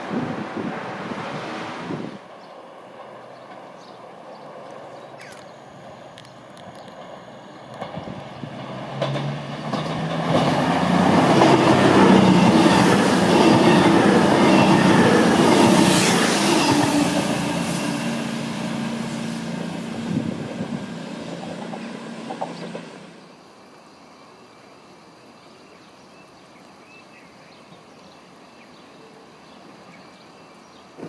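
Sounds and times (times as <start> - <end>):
passing train rumble: 0.0 - 23.5
wheels clacking over rails: 6.9 - 17.8, 21.2 - 23.2.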